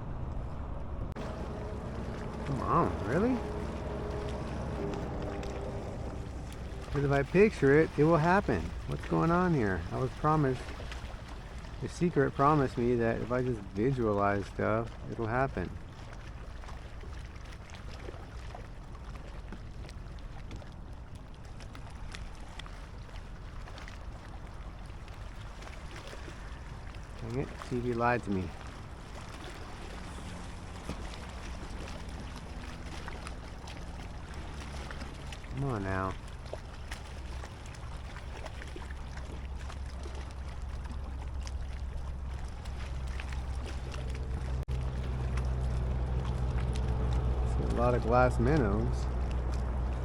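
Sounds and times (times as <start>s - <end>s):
wind rumble on microphone: 0.0s - 11.8s
steady low hum: 0.0s - 19.1s, 23.2s - 50.0s
small waves lapping against hull: 0.0s - 50.0s
little splashes: 1.1s - 50.0s.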